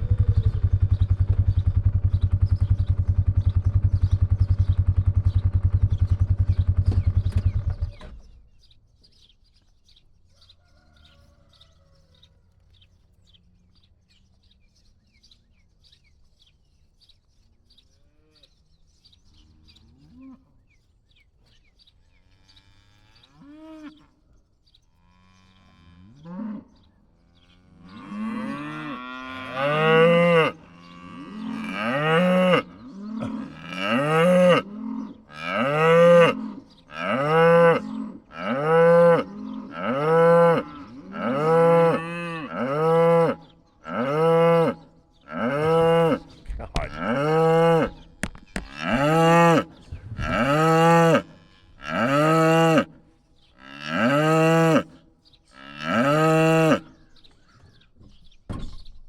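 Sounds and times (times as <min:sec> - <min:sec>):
cattle mooing: 0:27.6 - 0:52.9, 0:55.6 - 0:56.9.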